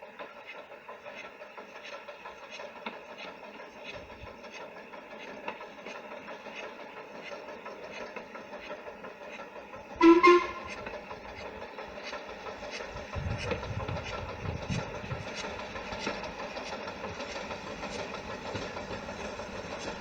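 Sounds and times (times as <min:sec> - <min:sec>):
train running: 0:00.0 - 0:20.0
train whistle blasts: 0:10.0 - 0:11.0.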